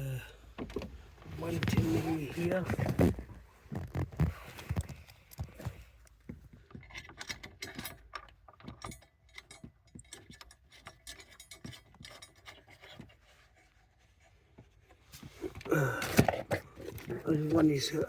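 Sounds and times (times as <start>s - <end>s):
hand tools clinking: 6.9s - 13.0s.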